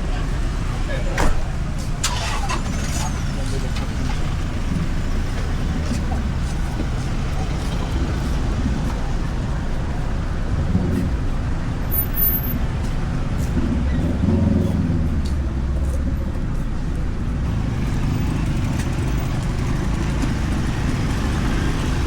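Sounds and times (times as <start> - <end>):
passers-by talking: 0.0 - 22.0
vehicles passing on road: 0.0 - 22.0.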